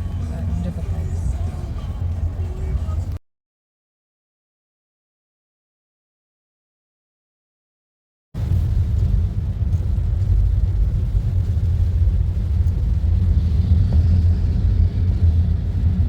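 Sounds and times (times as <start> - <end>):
car rumble from inside cabin: 0.0 - 3.2, 8.4 - 16.0.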